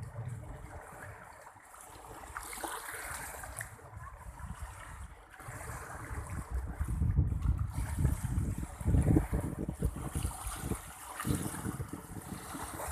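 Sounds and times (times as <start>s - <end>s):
wind buffeting microphone: 0.0s - 1.4s, 3.0s - 12.9s
sea surf washing: 0.0s - 12.9s.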